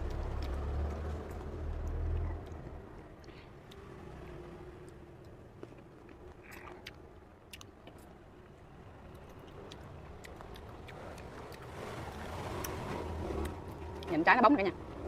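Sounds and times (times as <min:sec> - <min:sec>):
chewing cherries: 0:00.0 - 0:14.1
wet mouth clicks: 0:06.3 - 0:08.1, 0:09.2 - 0:12.8.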